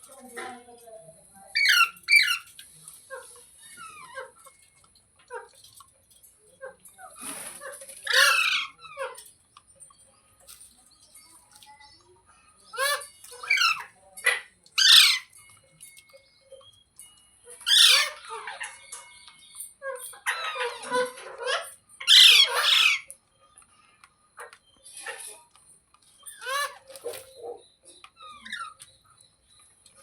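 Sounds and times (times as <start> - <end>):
parrot squawking: 1.5 - 2.5, 8.0 - 9.2, 12.7 - 15.4, 17.5 - 18.8, 19.9 - 23.1, 26.2 - 27.6.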